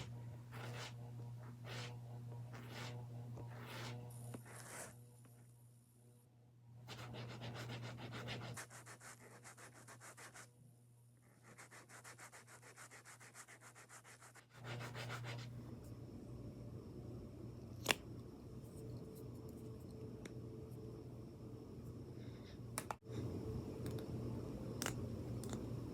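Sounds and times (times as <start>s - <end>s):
rapid rubbing strokes: 0.0s - 5.0s, 6.9s - 10.5s, 11.3s - 15.5s.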